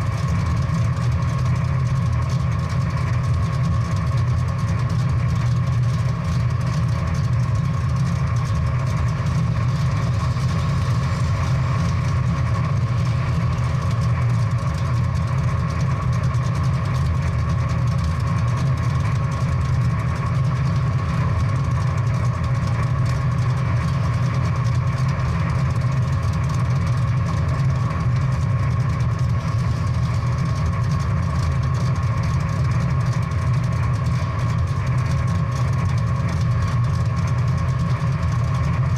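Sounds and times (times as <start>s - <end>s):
car engine idling deep: 0.0s - 38.9s.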